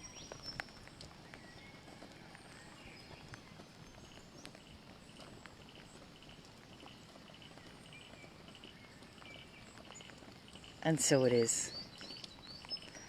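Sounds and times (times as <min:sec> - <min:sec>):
soft ticks: 0:12.0 - 0:13.0.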